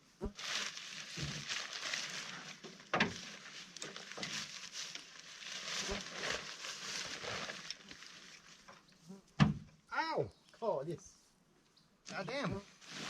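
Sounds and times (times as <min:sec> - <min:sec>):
tent fabric rustling: 0:00.2 - 0:08.9, 0:12.6 - 0:13.0.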